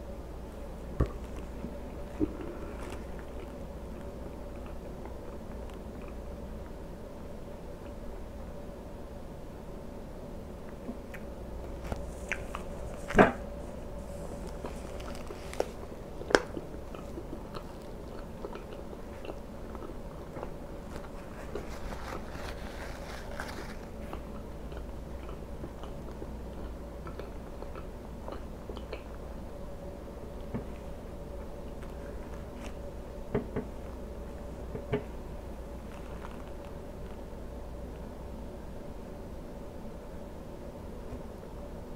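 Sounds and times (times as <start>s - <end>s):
faint steady hum: 0.0s - 41.9s
chewing pancake: 1.1s - 6.8s, 10.8s - 13.1s, 14.1s - 29.3s.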